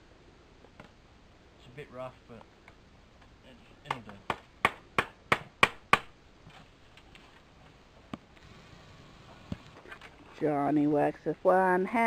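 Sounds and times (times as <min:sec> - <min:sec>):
hammer strikes: 0:03.9 - 0:06.1.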